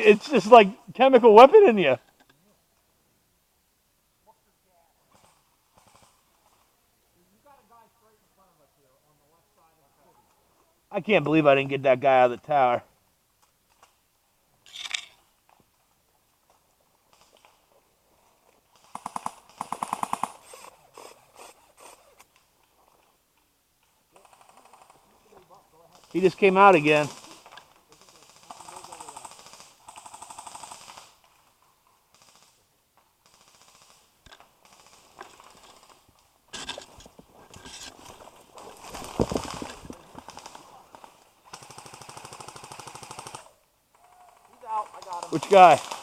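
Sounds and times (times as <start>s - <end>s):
airsoft gun full-auto bursts: 18.8s - 20.7s, 26.0s - 31.2s, 32.1s - 32.6s, 33.2s - 36.0s, 38.8s - 43.6s, 44.4s - 46.0s.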